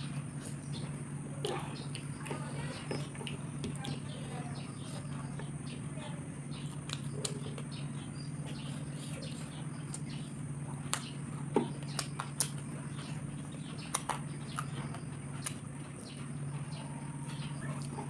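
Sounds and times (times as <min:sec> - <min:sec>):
chewing food: 0:00.0 - 0:18.0
steady low hum: 0:00.0 - 0:18.0
sharp smacking clicks: 0:10.8 - 0:12.6, 0:13.7 - 0:15.6.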